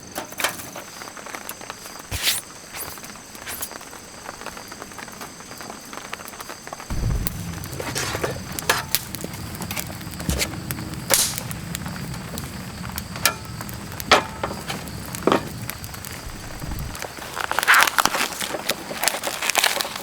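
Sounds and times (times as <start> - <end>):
campfire crackling and popping: 5.8 - 20.0
low steady rumble: 6.9 - 17.0.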